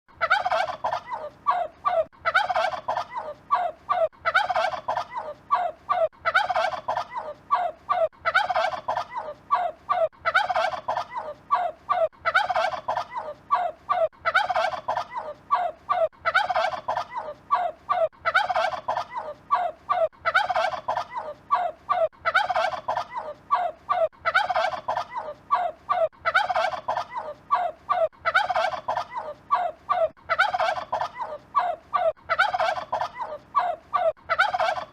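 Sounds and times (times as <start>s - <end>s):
turkey gobbling: 0.2s - 1.3s, 1.9s - 3.2s, 4.2s - 5.2s, 6.2s - 7.2s, 10.3s - 11.2s, 16.3s - 17.2s, 20.3s - 21.2s, 22.3s - 23.2s, 24.3s - 25.2s, 26.2s - 27.3s, 28.2s - 29.3s, 30.3s - 34.9s.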